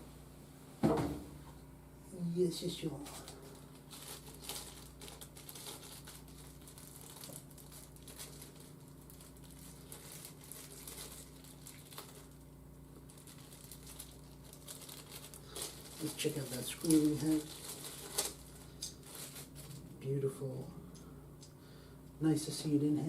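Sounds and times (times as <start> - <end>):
plastic packaging crinkling: 3.0 - 20.0.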